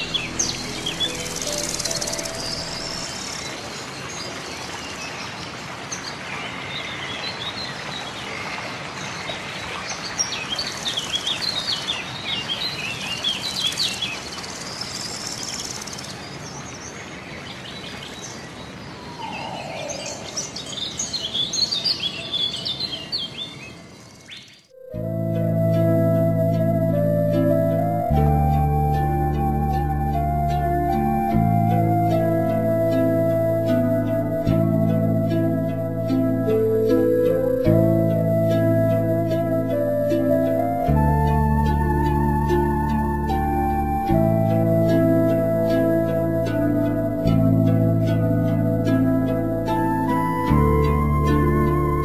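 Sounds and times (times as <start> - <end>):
small birds chirping: 0.0 - 8.3, 9.3 - 24.7
steady background hiss: 0.0 - 52.0.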